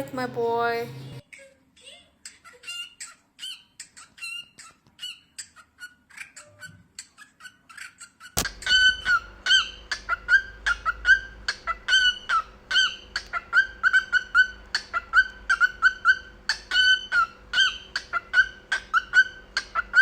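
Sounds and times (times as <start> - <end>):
sharp click: 8.4 - 8.9
steady low hum: 8.4 - 20.0
cockatiel whistling chirps: 8.6 - 20.0.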